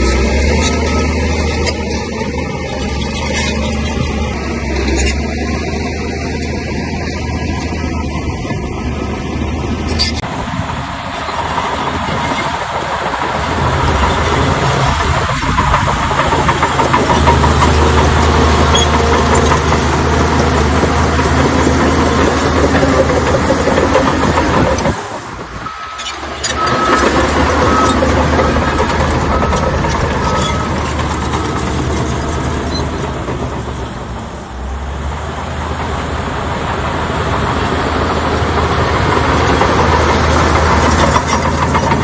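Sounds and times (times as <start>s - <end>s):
bulldozer diesel engine: 0.0s - 42.0s
mechanical clatter: 11.6s - 34.0s, 38.6s - 42.0s.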